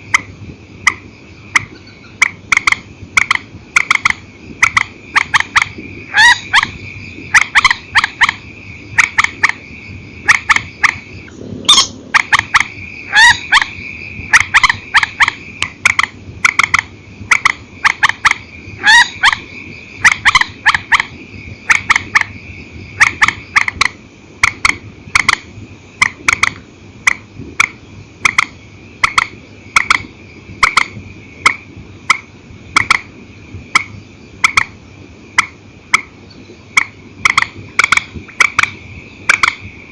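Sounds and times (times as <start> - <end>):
swamphen calling: 0.0 - 26.6
steady high whine: 0.0 - 39.9.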